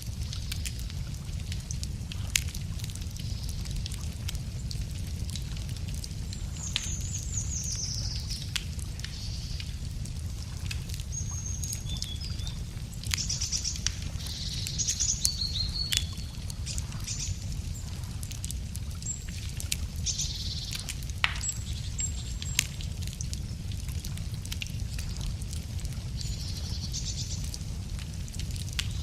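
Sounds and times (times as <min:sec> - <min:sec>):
campfire crackling and popping: 0:00.0 - 0:29.0
steady low rumble: 0:00.0 - 0:29.0
songbirds chirping: 0:06.1 - 0:10.1, 0:10.8 - 0:23.7.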